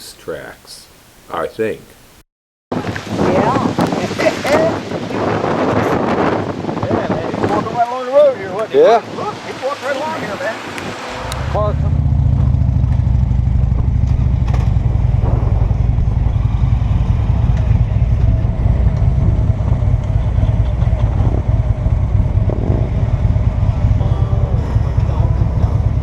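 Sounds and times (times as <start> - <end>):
wind rumble on microphone: 2.7 - 26.0
motorcycle engine: 9.7 - 26.0.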